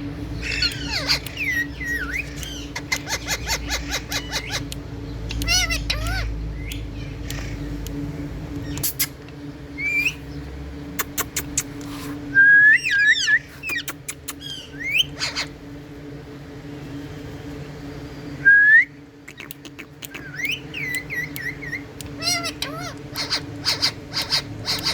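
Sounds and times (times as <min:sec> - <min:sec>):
steady low hum: 0:00.0 - 0:24.9
parrots whistling: 0:00.4 - 0:04.7, 0:05.3 - 0:07.5, 0:12.4 - 0:15.5, 0:18.4 - 0:24.9
parrot chattering calls: 0:00.4 - 0:07.7, 0:12.8 - 0:15.6, 0:19.2 - 0:24.9
sharp clicks: 0:00.6 - 0:03.5, 0:04.5 - 0:09.4, 0:11.0 - 0:11.9, 0:19.3 - 0:22.2.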